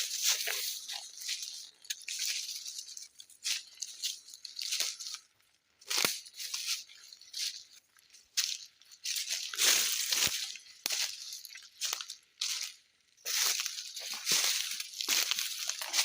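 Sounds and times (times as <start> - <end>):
footsteps crunching on forest floor: 0.0 - 16.0.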